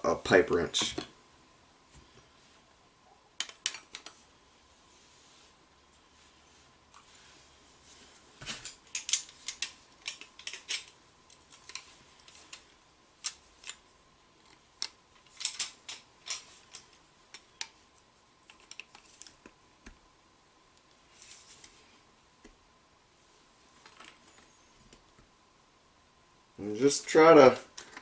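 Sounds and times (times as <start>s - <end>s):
pliers clicking on pipe fittings: 8.6s - 12.6s, 13.2s - 13.8s.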